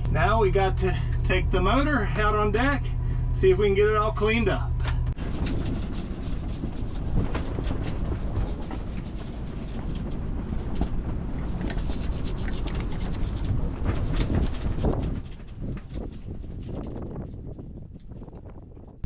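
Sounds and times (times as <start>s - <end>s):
scrubbing and scraping a motor: 5.2s - 10.8s, 11.4s - 19.0s.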